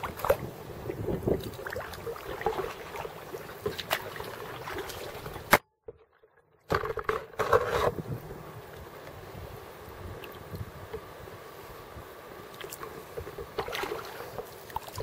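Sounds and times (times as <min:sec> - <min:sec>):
water splashing against boat: 0:00.0 - 0:08.2, 0:12.4 - 0:15.0
kayak paddle strokes: 0:00.0 - 0:15.0.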